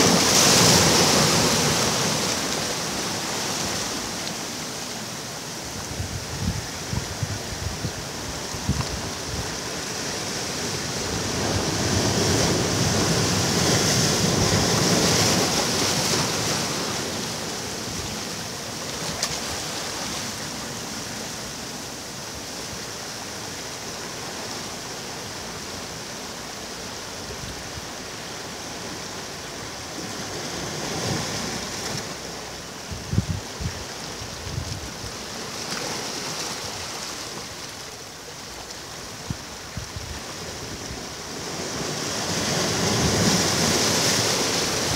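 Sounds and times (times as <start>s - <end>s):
waves breaking on a beach: 0.0s - 44.9s
wind on microphone: 5.6s - 17.1s, 32.8s - 35.2s, 39.1s - 44.9s.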